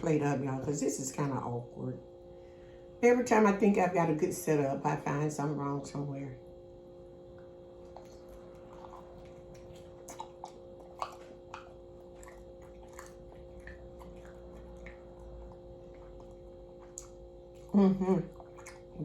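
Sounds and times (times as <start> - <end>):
faint steady hum: 0.0 - 19.0
person chewing crispy chicken: 7.8 - 19.0.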